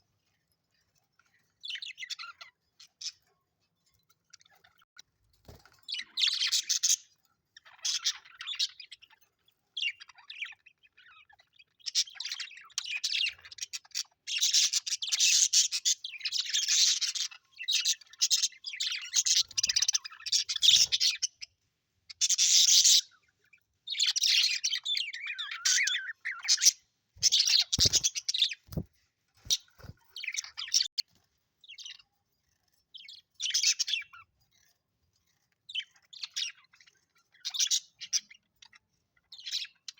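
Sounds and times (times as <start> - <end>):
budgerigars chirping: 6.0 - 9.2, 9.8 - 21.5, 22.1 - 31.0, 35.7 - 39.9.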